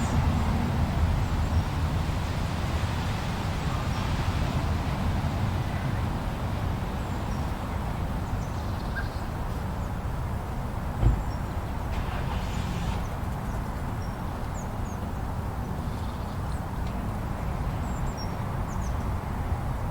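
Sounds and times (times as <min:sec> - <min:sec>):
blizzard wind rumble: 0:00.0 - 0:08.8
soft thump: 0:11.0 - 0:11.4.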